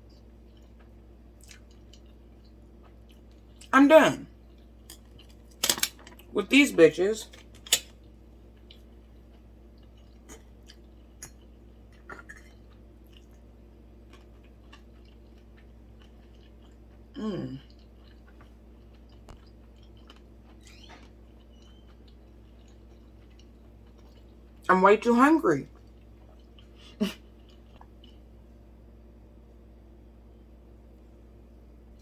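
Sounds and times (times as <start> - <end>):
close chewing with mouth clicks: 0.0 - 3.7, 7.4 - 24.6, 25.7 - 28.3.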